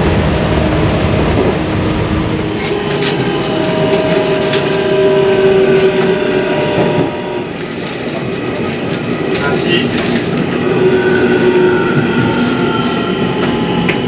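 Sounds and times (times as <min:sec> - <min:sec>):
electric train whine: 0:00.0 - 0:14.0
wheels clicking over rail joints: 0:02.4 - 0:11.1.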